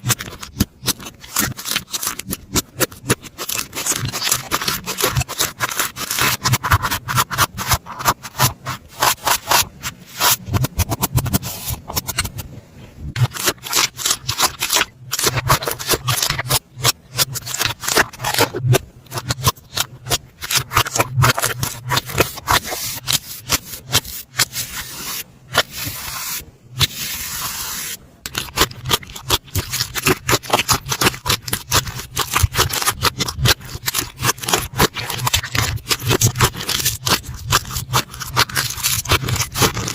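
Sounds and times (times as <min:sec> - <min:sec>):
slime crackling and popping: 0:13.2 - 0:24.5, 0:28.3 - 0:39.9.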